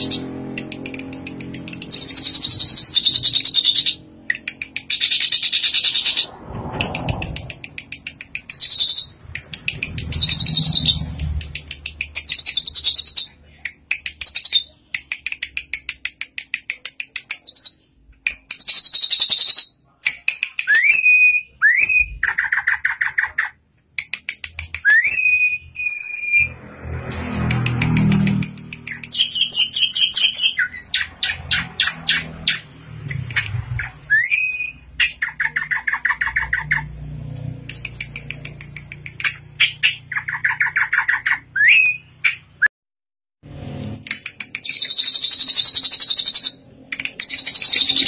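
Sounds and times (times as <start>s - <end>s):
bird chattering trills: 0.0s - 6.3s
rising whistled bird notes: 24.8s - 26.6s, 33.8s - 34.8s, 41.5s - 42.0s.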